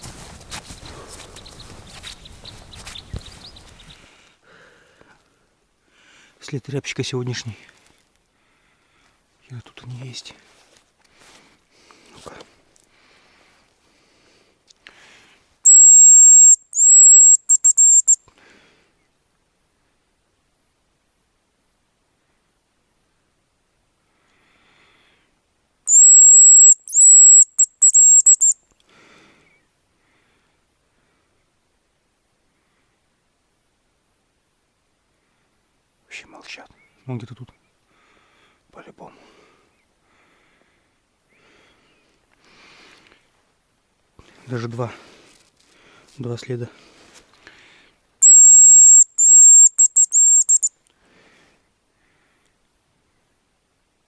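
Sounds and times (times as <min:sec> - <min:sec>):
faint rustle: 0:00.0 - 0:05.4, 0:07.5 - 0:15.6, 0:41.5 - 0:48.1
high decoy whistle: 0:15.6 - 0:18.2, 0:25.9 - 0:28.6, 0:48.2 - 0:50.7.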